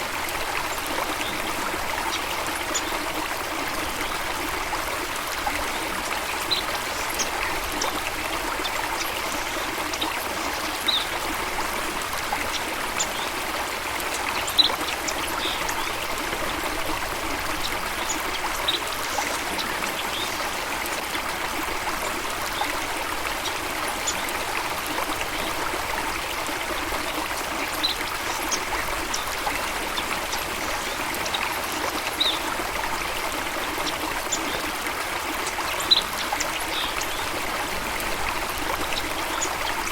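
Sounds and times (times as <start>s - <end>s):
rushing trickling water: 0.0s - 39.9s.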